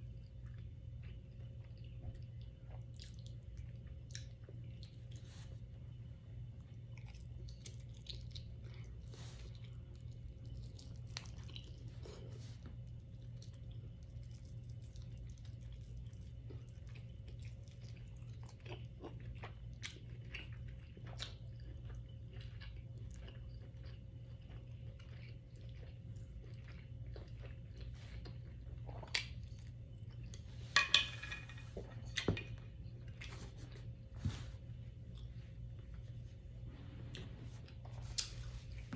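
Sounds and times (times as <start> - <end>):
steady low hum: 0.0 - 38.9
chewing and biting: 6.6 - 30.4.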